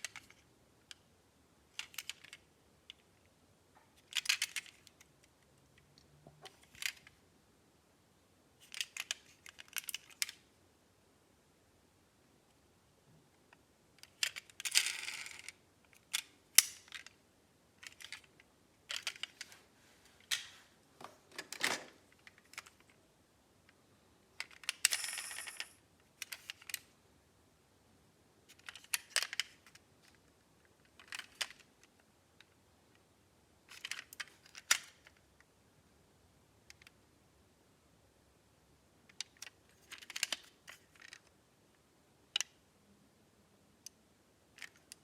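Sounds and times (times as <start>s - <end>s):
metal toy cars clinking: 24.4s - 26.8s.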